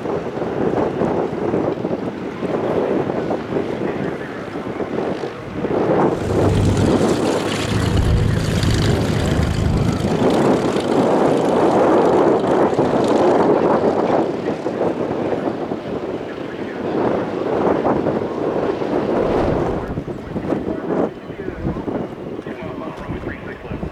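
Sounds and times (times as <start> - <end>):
wind buffeting microphone: 4.8 - 15.9, 17.1 - 23.9
propeller airplane engine passing: 6.0 - 13.5, 18.4 - 20.6.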